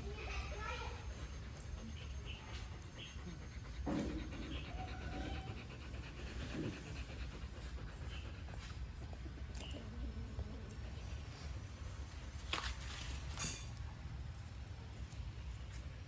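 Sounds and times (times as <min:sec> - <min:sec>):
dog panting: 0:00.0 - 0:11.9
thump: 0:03.8 - 0:04.4.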